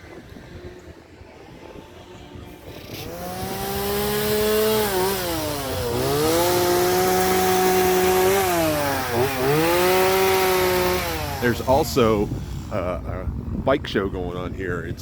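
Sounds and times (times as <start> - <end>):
small engine at high revs: 1.4 - 12.9.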